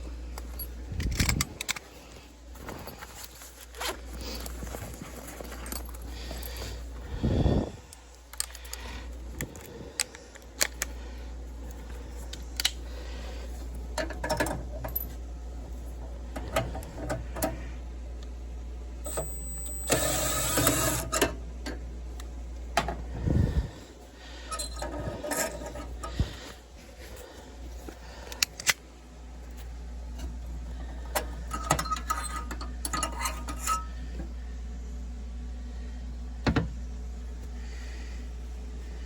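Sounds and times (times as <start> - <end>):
steady low hum: 0.0 - 39.0
tools and metal parts clicking: 0.4 - 1.9, 8.2 - 8.8, 14.0 - 15.2, 31.1 - 33.9.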